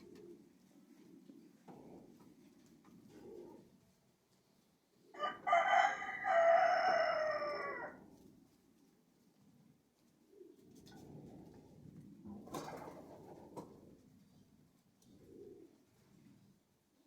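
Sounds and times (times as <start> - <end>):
pigeons cooing: 0.0 - 5.5, 10.2 - 16.6
rooster crowing: 5.2 - 8.0.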